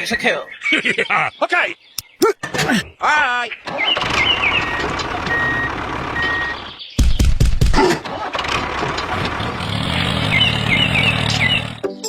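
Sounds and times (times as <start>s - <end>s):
birds chirping: 0.0s - 8.0s, 8.9s - 12.0s
vehicle engine running: 4.0s - 6.8s, 8.1s - 11.8s.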